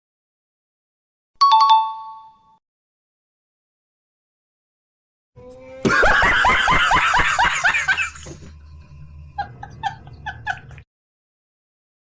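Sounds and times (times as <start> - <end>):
person laughing: 5.8 - 8.6, 9.3 - 10.8.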